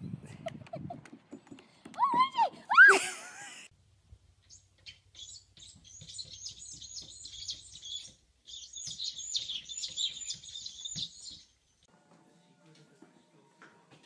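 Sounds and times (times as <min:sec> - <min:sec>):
small bird twittering: 0:04.4 - 0:11.6.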